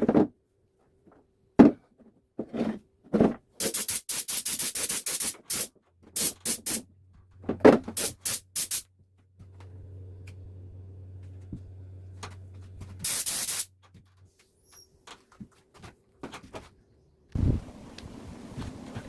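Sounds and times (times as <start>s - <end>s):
hissing bursts of air: 3.6s - 6.8s, 8.0s - 8.9s, 13.0s - 13.7s
air compressor hum: 12.9s - 13.7s.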